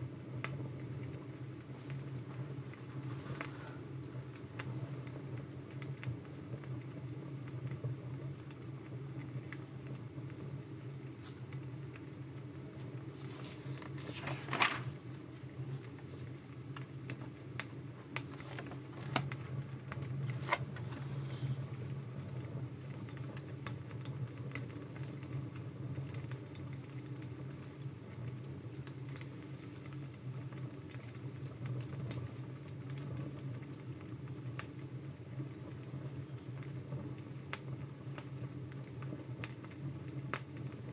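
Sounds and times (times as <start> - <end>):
wood fire crackling: 0.2 - 9.7, 10.3 - 31.3.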